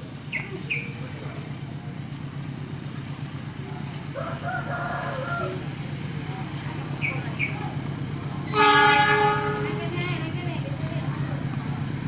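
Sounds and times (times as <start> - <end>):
low engine rumble: 0.0 - 12.0
rooster crowing: 4.2 - 5.6.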